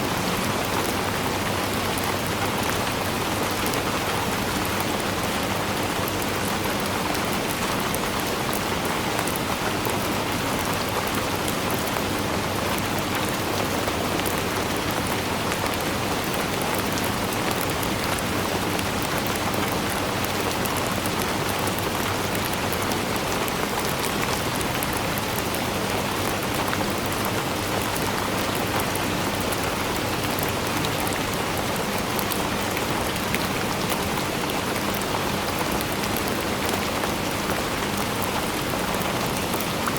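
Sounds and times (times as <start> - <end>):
rain falling: 0.0 - 39.9
raindrops pattering on a surface: 0.0 - 39.9.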